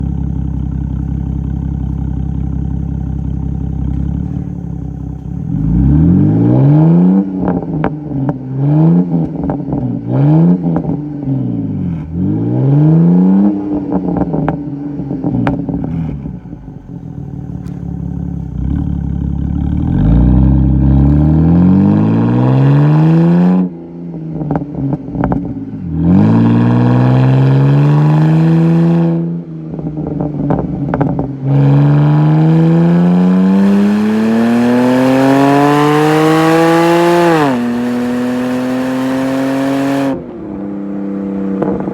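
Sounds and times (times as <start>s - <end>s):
exhaust cracks: 0.0s - 6.2s, 16.9s - 21.0s
car engine idling and revving: 0.0s - 41.9s.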